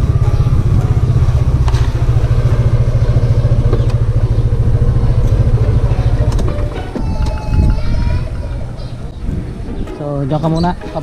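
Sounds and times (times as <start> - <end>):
scooter engine idling: 0.0 - 9.8.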